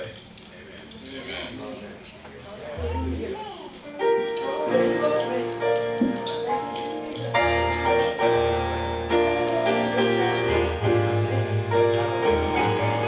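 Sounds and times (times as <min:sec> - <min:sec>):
church keyboard chords: 0:03.9 - 0:13.0.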